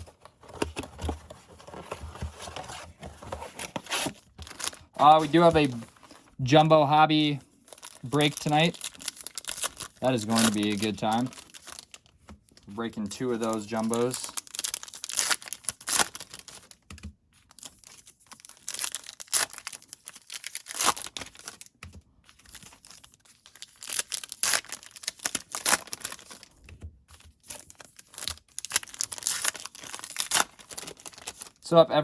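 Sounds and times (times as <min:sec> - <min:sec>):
foil wrappers crinkling and tearing: 0:03.5 - 0:06.4, 0:07.7 - 0:16.8, 0:17.5 - 0:21.7, 0:22.3 - 0:26.6, 0:27.4 - 0:31.7.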